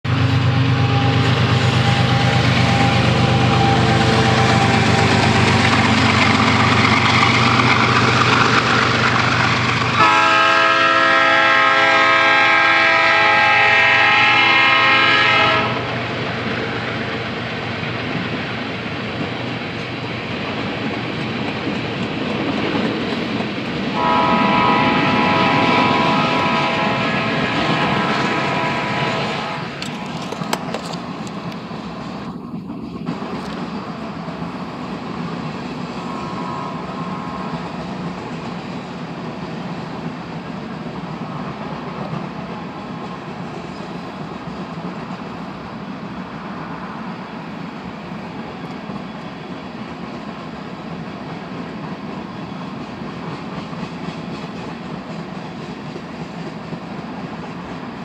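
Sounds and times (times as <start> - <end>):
diesel locomotive hum: 0.0 - 58.0
train air horn blasts: 0.1 - 6.7, 10.0 - 15.9, 23.9 - 29.8, 36.0 - 37.8
train wheels clattering: 0.3 - 11.0, 15.8 - 45.7, 47.8 - 58.0.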